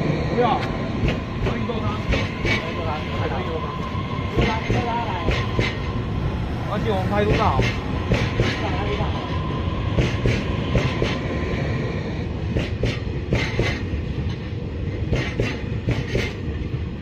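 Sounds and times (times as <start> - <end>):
train low rumble: 0.0 - 17.0
wheels clacking over rail joints: 0.5 - 3.0, 7.0 - 9.0, 12.4 - 16.5.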